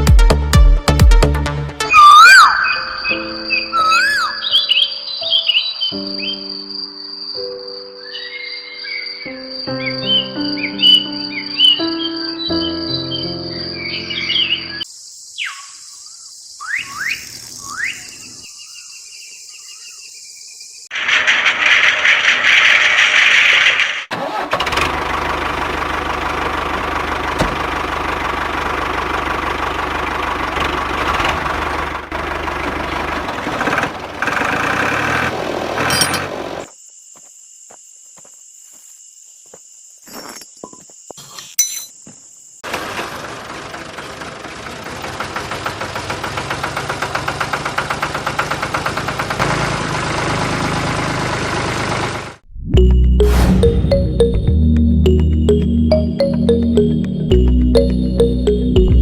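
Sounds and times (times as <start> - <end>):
engine running low hum: 20.9 - 36.7, 42.7 - 59.0
high steady tone: 52.7 - 59.0.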